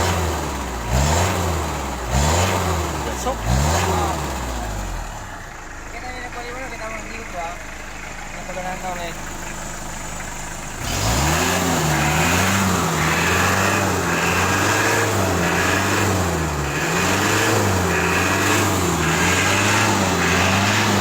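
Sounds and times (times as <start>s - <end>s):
vehicle engine revving: 0.0s - 5.6s, 6.3s - 21.0s.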